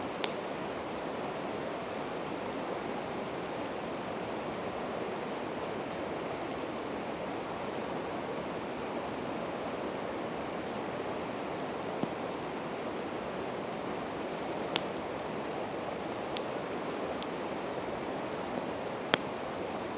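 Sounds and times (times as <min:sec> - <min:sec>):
campfire pops and cracks: 0:00.1 - 0:00.6, 0:12.0 - 0:12.2, 0:13.1 - 0:19.4.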